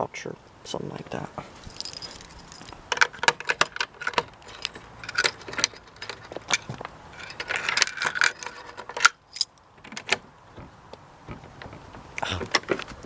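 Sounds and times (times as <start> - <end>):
keys jangling: 1.7 - 9.5.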